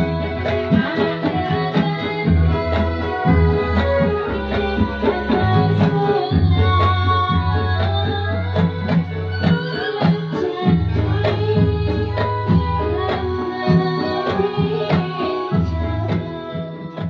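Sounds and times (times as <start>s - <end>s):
hand drums beating: 0.0s - 17.0s.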